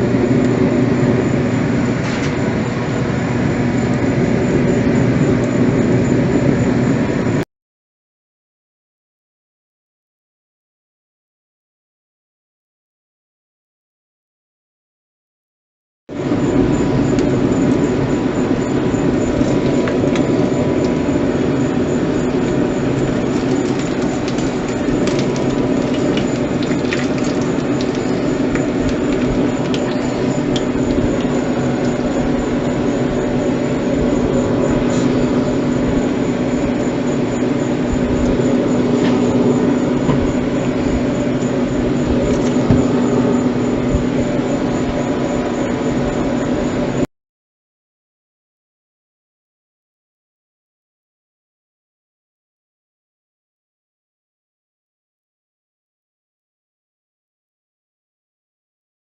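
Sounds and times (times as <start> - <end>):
grill roaring: 0.0 - 7.4, 16.1 - 47.0
food crackling: 22.0 - 32.8.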